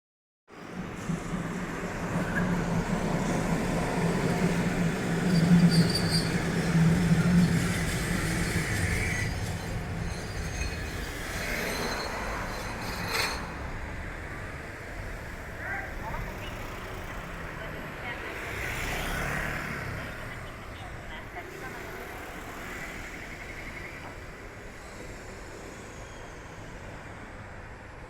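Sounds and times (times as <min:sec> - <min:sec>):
tram passing: 0:00.5 - 0:28.0
high wheel squeals: 0:05.2 - 0:13.7, 0:24.6 - 0:27.2.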